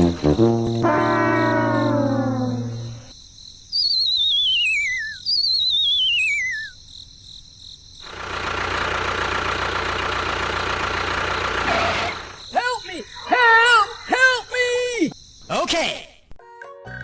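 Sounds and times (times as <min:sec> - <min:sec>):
falling wavering whistle tones: 0:00.4 - 0:03.1, 0:03.8 - 0:06.8.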